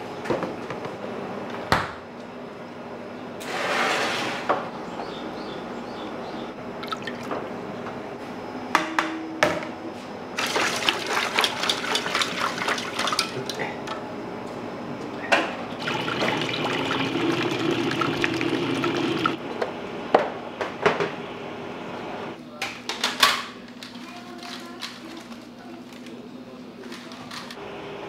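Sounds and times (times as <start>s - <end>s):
water running from a tap: 10.4s - 13.1s, 15.8s - 19.4s.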